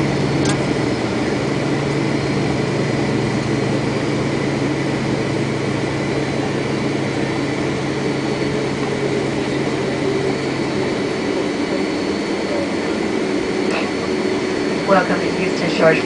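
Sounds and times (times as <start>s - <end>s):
jet engines and airflow in cabin: 0.0s - 16.0s.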